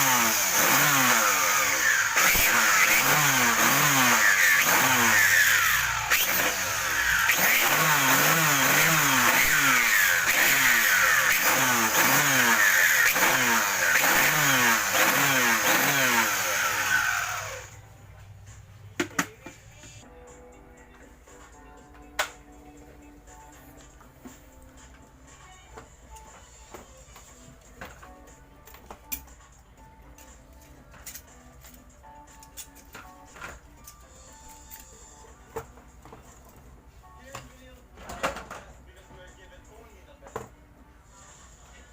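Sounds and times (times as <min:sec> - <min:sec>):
motor running with loud hiss: 0:00.0 - 0:17.8.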